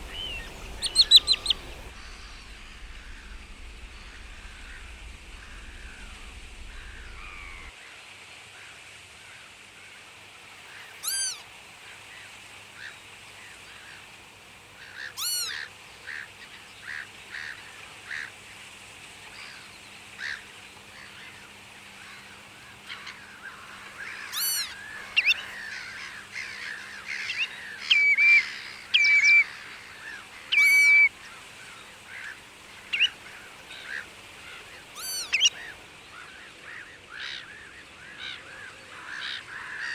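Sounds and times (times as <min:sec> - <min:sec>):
chatter of short bird calls: 0:00.0 - 0:01.9, 0:10.8 - 0:11.4, 0:14.9 - 0:16.4, 0:22.1 - 0:35.9
waterbirds calling: 0:00.0 - 0:07.7, 0:10.5 - 0:39.9
whistled bird notes: 0:00.0 - 0:07.7, 0:11.0 - 0:11.4, 0:15.2 - 0:15.5, 0:24.4 - 0:25.4, 0:30.5 - 0:31.1, 0:35.0 - 0:35.6.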